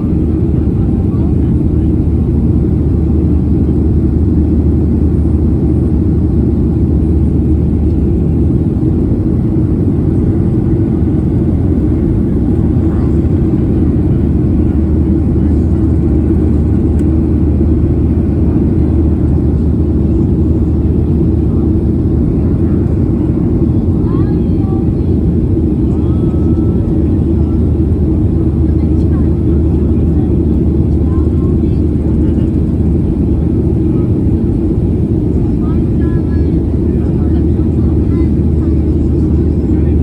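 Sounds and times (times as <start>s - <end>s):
jet engine rumble in cabin: 0.0s - 40.0s.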